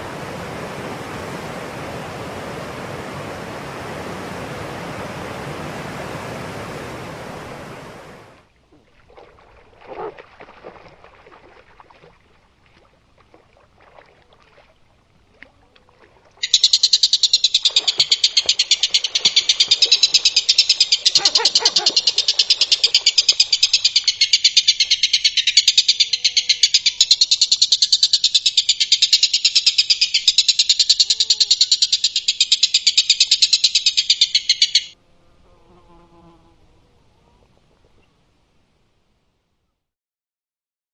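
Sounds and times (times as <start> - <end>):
animal buzzing trill: 21.1 - 22.8.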